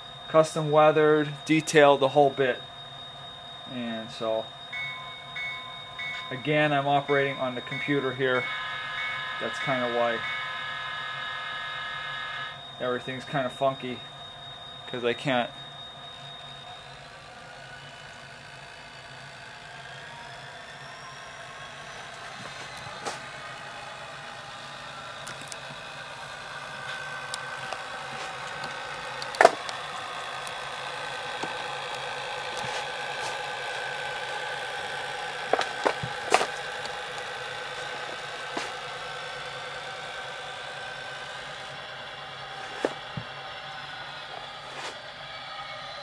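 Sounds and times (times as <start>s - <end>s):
model locomotive diesel engine sound: 0.0s - 46.0s
sharp clicks: 26.9s - 30.6s.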